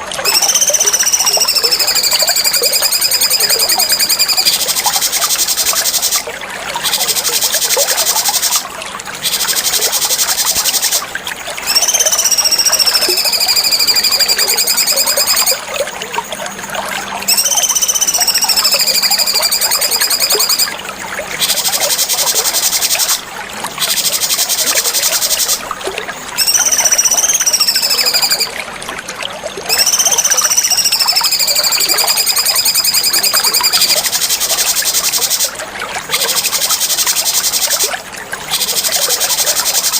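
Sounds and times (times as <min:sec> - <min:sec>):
whistled birdsong phrases: 0:00.2 - 0:04.6, 0:11.6 - 0:15.6, 0:17.2 - 0:20.7, 0:29.7 - 0:34.0
fast high buzzing bird trill: 0:00.2 - 0:15.6, 0:17.2 - 0:20.7, 0:21.4 - 0:23.2, 0:23.8 - 0:25.6, 0:26.4 - 0:28.6, 0:29.7 - 0:37.9, 0:38.5 - 0:39.9.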